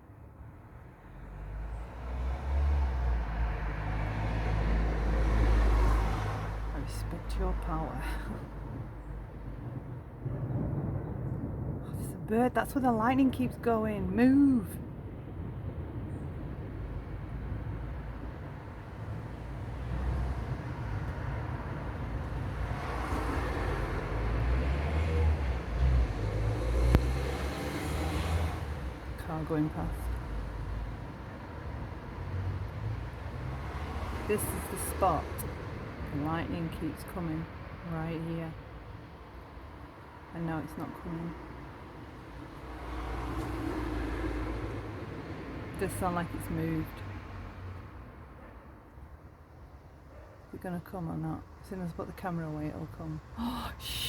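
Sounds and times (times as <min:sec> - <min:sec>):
car approaching on road: 0:01.0 - 0:11.7, 0:15.0 - 0:34.6
thunder rolling: 0:08.5 - 0:24.8.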